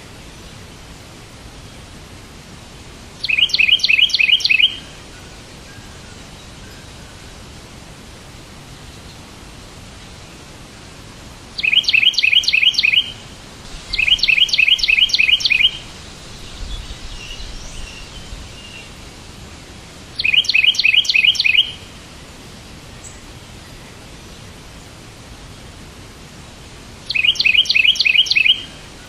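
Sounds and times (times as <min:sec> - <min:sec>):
steady hiss: 0:00.0 - 0:29.0
bird chirping: 0:03.2 - 0:07.2, 0:11.6 - 0:19.0, 0:20.2 - 0:21.9, 0:27.1 - 0:29.0
soft bird twittering: 0:03.2 - 0:07.4, 0:11.6 - 0:19.1, 0:20.2 - 0:21.9, 0:27.1 - 0:29.0.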